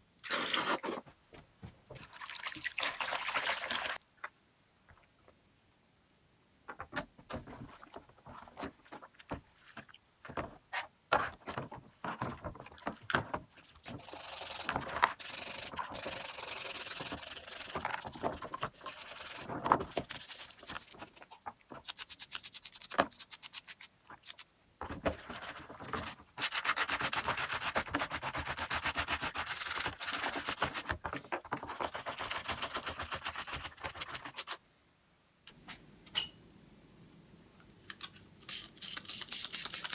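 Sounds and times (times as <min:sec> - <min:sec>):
small parts clicking and knocking: 0:37.9 - 0:39.9.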